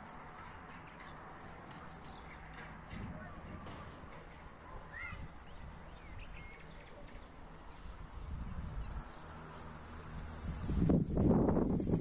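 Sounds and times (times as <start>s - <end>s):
bird chirps: 4.9s - 7.9s
wind on the microphone: 7.9s - 9.1s, 10.1s - 12.0s.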